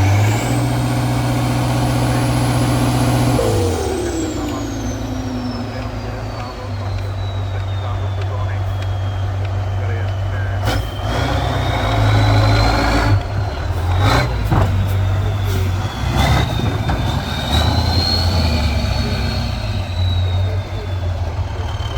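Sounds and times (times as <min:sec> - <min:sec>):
high whine: 0:00.0 - 0:13.8
truck engine under load: 0:00.0 - 0:21.9.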